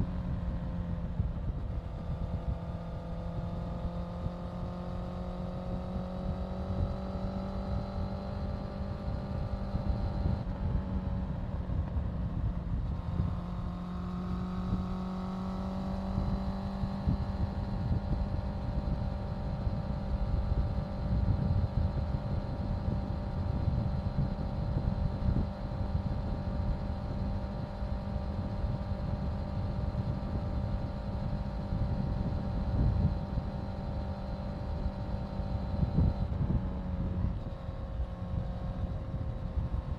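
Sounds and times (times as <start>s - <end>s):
motorcycle engine running: 0.0s - 39.9s
wind buffeting microphone: 34.9s - 39.9s.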